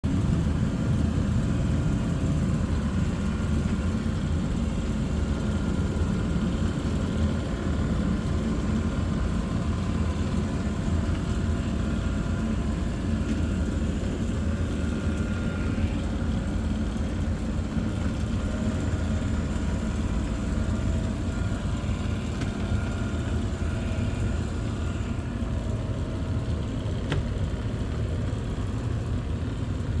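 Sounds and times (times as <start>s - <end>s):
faint whining tones: 0.1s - 30.0s
robot vacuum motor hum: 2.7s - 28.9s.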